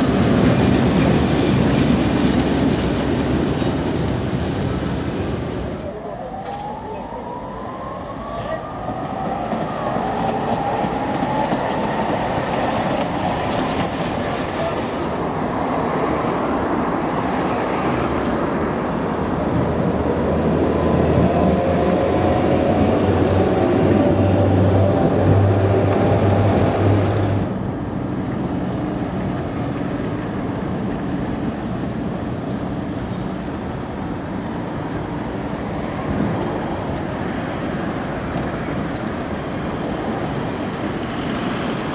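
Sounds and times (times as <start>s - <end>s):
tram motor whine: 0.0s - 18.5s
tram wheels rolling on rails: 0.0s - 41.9s.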